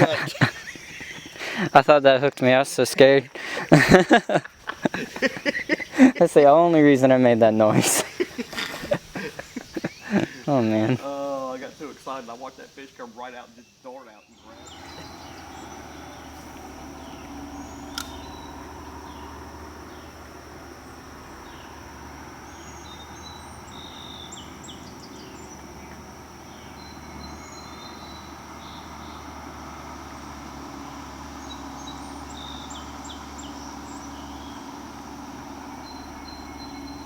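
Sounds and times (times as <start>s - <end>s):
bird chirps: 0.0s - 1.8s, 3.4s - 37.0s
high insect drone: 0.0s - 37.0s
sharp click: 17.9s - 18.2s.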